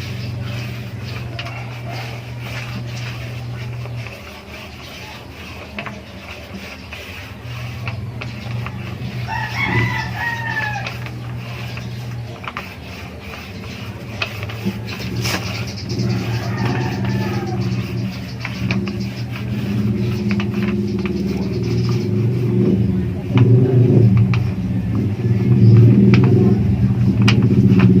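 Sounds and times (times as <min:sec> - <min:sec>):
steady low hum: 0:00.0 - 0:28.0
rooster crowing: 0:01.3 - 0:02.4, 0:09.0 - 0:11.6, 0:15.9 - 0:18.1.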